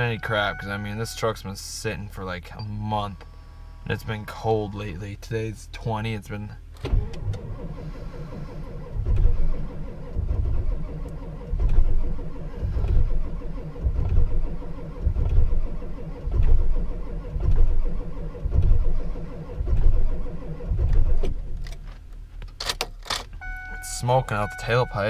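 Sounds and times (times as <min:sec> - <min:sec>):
diesel engine cranking: 0:06.7 - 0:25.0.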